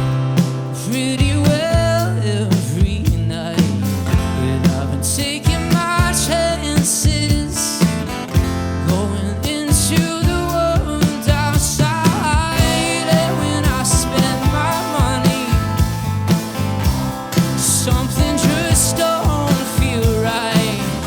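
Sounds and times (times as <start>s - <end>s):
live band playing: 9.9s - 21.0s.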